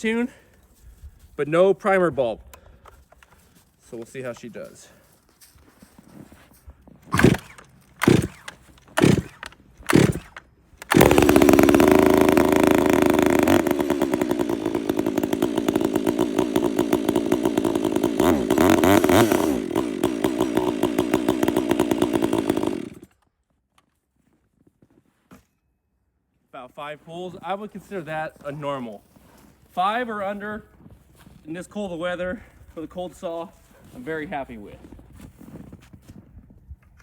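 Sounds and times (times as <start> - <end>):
chainsaw starter cord pulls: 7.0 - 23.3
chainsaw engine running: 7.1 - 23.2.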